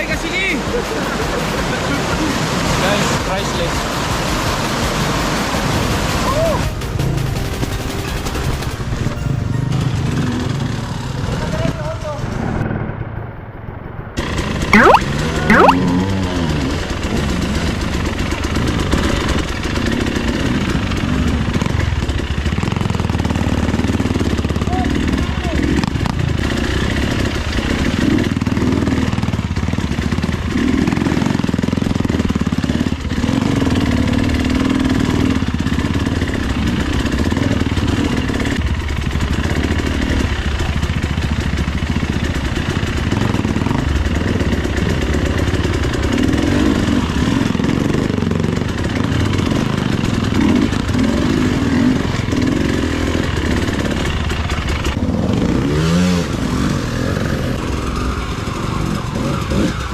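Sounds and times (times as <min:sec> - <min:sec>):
motorcycle engine revving: 0:14.2 - 0:59.9.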